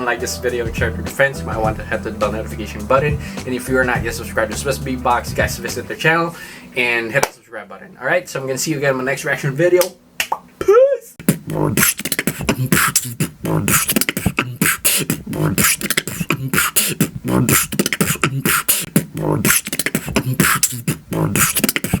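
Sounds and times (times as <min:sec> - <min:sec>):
low bass line: 0:00.3 - 0:05.8
beatboxing: 0:00.4 - 0:05.9, 0:11.2 - 0:22.0.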